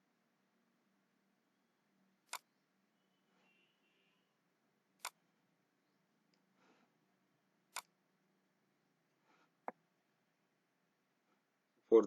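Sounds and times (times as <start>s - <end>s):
computer mouse clicks: 2.3s - 2.5s, 5.0s - 5.2s, 7.7s - 7.9s.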